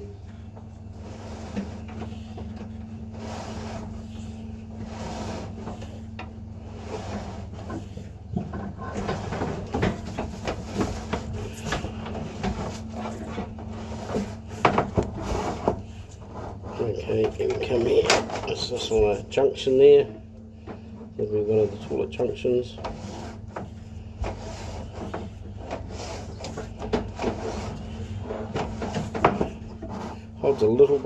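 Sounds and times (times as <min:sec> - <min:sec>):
low electrical hum: 0:00.0 - 0:31.0
push rod knocking and rubbing: 0:04.8 - 0:18.5, 0:22.7 - 0:30.2.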